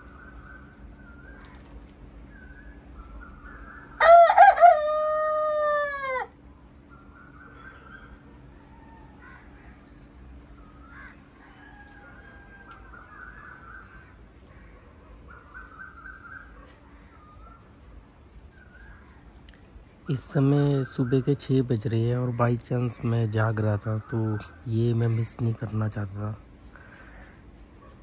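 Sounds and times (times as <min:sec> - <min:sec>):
faint bird calls: 0:00.0 - 0:28.0
rooster crowing: 0:04.0 - 0:06.4, 0:10.9 - 0:14.0.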